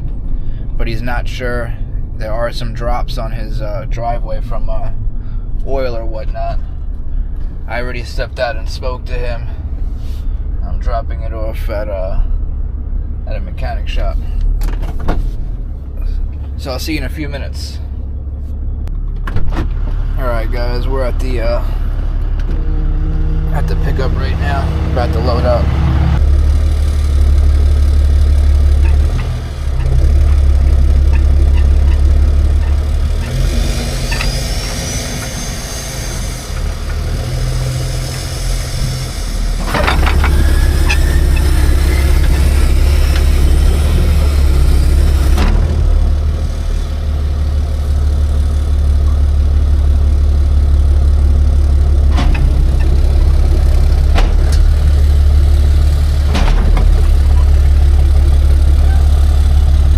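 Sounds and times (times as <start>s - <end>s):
truck engine idling: 0.0s - 59.9s
rising whine: 19.8s - 50.2s.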